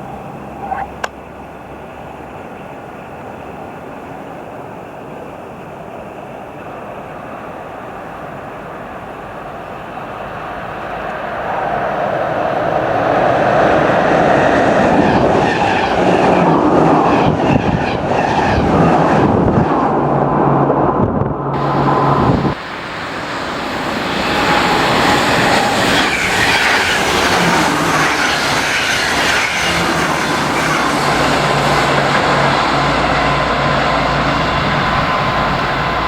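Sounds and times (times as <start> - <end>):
low hum: 19.4 - 36.0
train wheels clattering on rails: 23.7 - 36.0.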